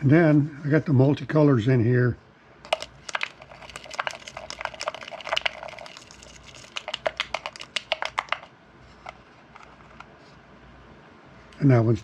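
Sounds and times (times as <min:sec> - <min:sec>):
glitter container shaken and tapped: 0:02.7 - 0:08.5.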